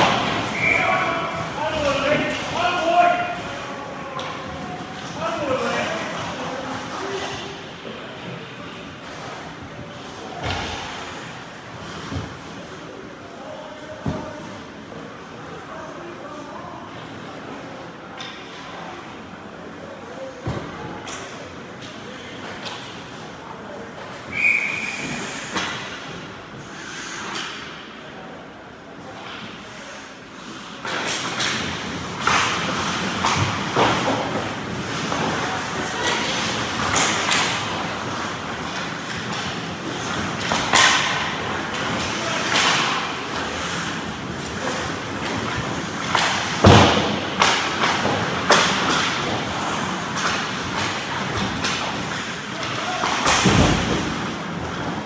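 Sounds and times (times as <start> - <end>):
thud against rink boards: 0.0 - 3.5, 10.4 - 11.2, 30.9 - 55.0
skates scraping ice: 0.0 - 7.6, 29.8 - 55.0.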